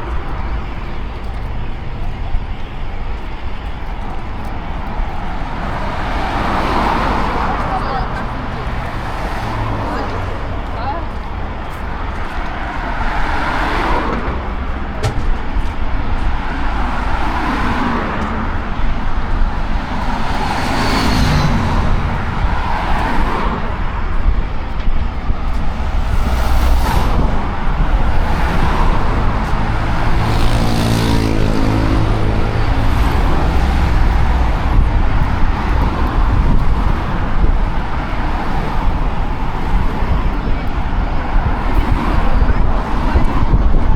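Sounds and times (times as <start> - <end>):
faint voices: 0.0 - 16.2, 17.0 - 43.9
passing cars: 0.0 - 43.9
vehicle engine hum passing by: 16.8 - 24.4, 25.6 - 40.7.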